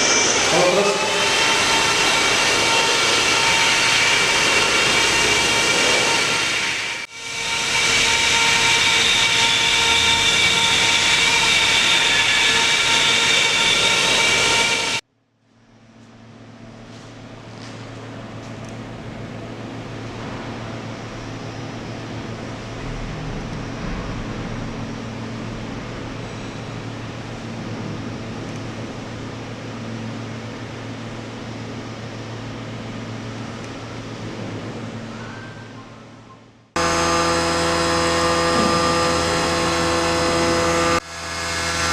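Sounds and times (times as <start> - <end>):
machine-tool spindle humming: 0.0 - 15.0, 36.8 - 41.9
spindle high-pitched whine: 0.0 - 15.0, 15.6 - 41.9.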